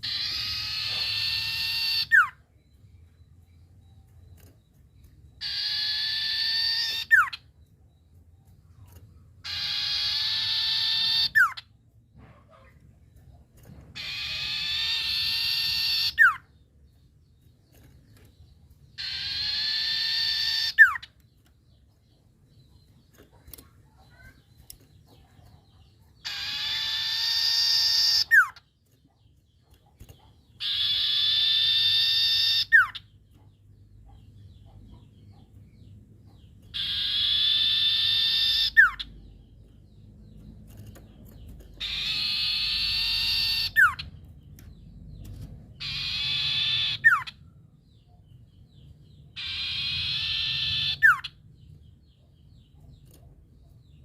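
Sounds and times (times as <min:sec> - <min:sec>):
owl harsh raspy calls: 0:00.0 - 0:02.4, 0:05.4 - 0:07.4, 0:09.4 - 0:11.6, 0:14.0 - 0:16.4, 0:19.0 - 0:21.1, 0:26.2 - 0:28.6, 0:30.6 - 0:33.0, 0:36.7 - 0:39.1, 0:41.8 - 0:44.0, 0:45.8 - 0:47.4, 0:49.4 - 0:51.4.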